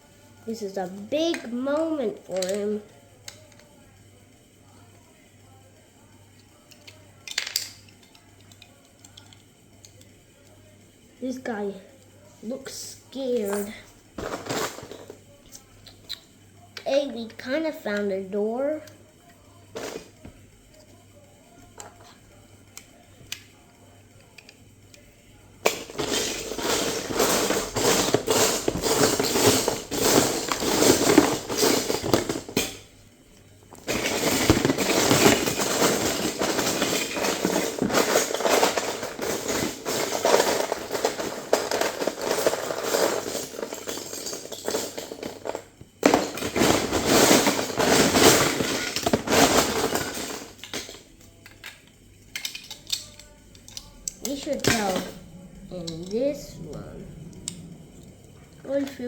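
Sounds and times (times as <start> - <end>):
plastic bricks clattering: 25.7 - 32.8, 33.8 - 55.4.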